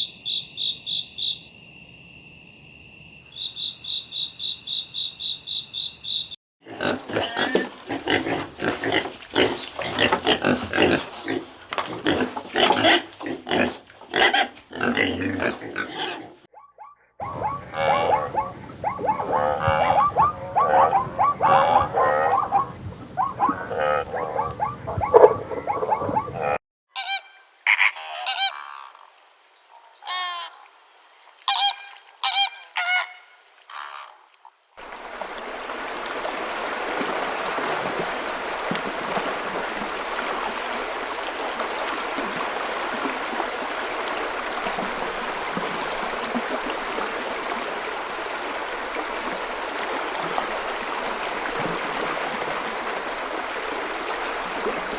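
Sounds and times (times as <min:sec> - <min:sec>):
stream water rushing: 0:06.9 - 0:16.3, 0:34.8 - 0:54.9
geese honking: 0:27.0 - 0:28.9, 0:31.5 - 0:34.2.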